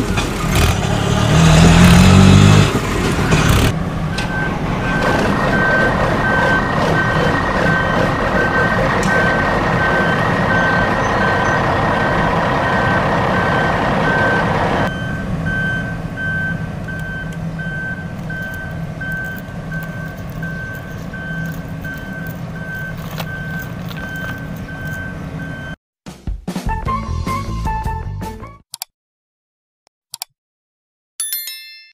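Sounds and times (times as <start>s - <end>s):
loud engine-like noise: 0.0s - 25.8s
low engine rumble: 0.0s - 25.8s
vehicle reversing alarm beeping: 3.2s - 25.8s.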